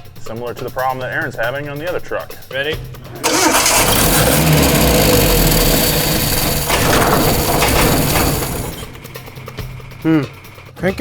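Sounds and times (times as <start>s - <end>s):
engine cranking on starter motor: 3.1s - 10.6s.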